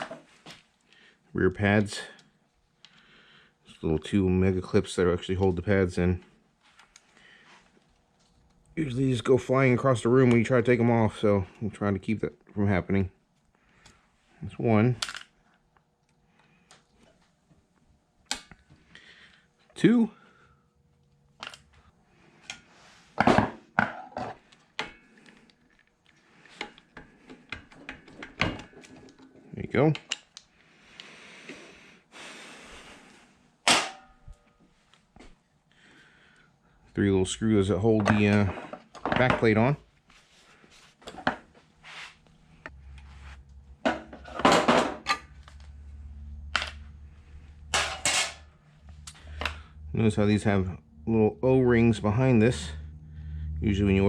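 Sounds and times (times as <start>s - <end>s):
low hum: 45.3s - 54.0s.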